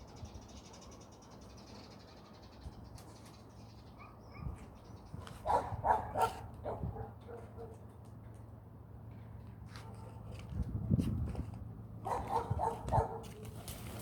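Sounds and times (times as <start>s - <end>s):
dog barking: 5.4s - 7.8s, 12.0s - 13.3s.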